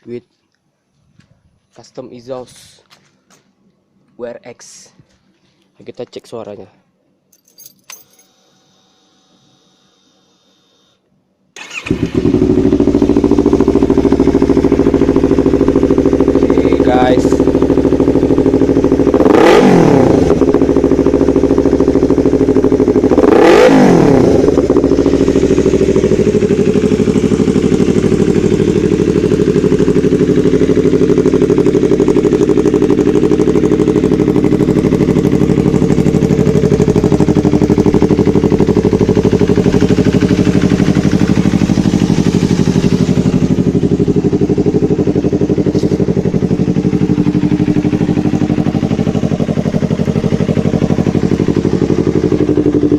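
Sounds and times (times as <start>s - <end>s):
motorcycle engine idling: 11.6s - 52.9s.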